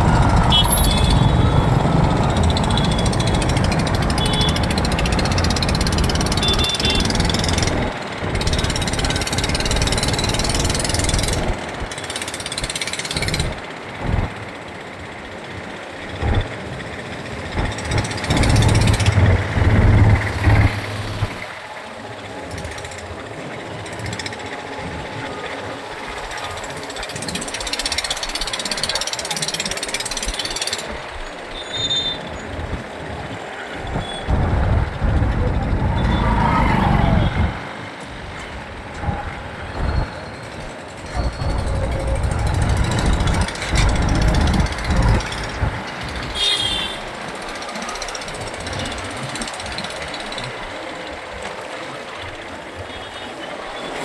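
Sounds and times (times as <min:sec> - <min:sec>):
wind rush: 0:00.0 - 0:10.0, 0:32.4 - 0:46.4
motorcycle engine running: 0:00.0 - 0:31.6, 0:32.2 - 0:51.1
fast mechanical rattle: 0:00.0 - 0:52.8.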